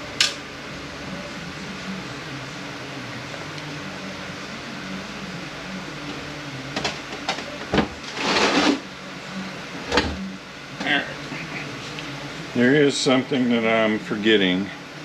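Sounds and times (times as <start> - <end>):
low shop hum: 0.0 - 15.0
metal scraping: 8.0 - 8.8.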